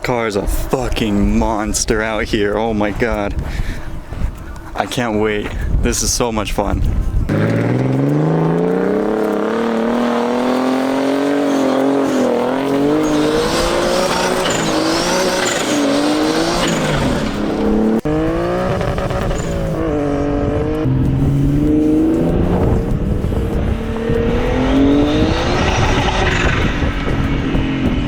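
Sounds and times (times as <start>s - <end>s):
car engine revving hard: 7.3s - 28.0s.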